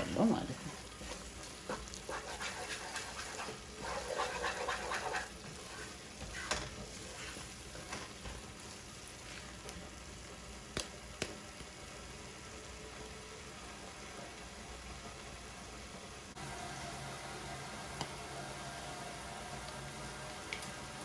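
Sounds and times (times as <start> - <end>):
low sizzle: 0.0 - 21.0
wooden spoon scraping a pot: 0.5 - 9.6.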